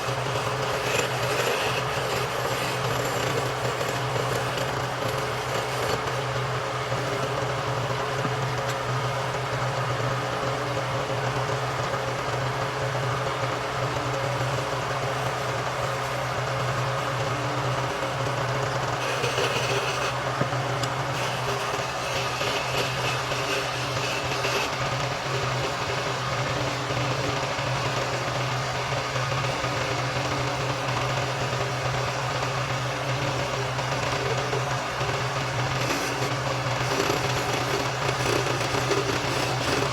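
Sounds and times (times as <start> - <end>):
turning tool cutting wood: 0.0 - 7.5, 18.7 - 39.9
wood lathe motor humming: 0.0 - 9.4, 14.1 - 39.9.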